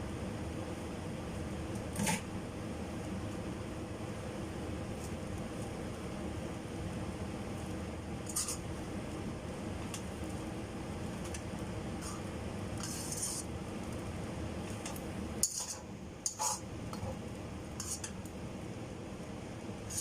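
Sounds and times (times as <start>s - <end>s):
steady low hum: 0.0s - 20.0s
utensils clinking on cookware: 15.4s - 16.6s.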